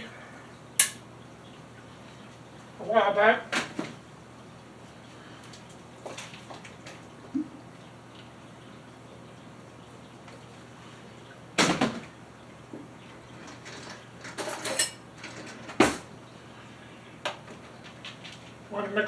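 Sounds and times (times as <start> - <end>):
dishes and utensils clinking: 13.4 - 16.0.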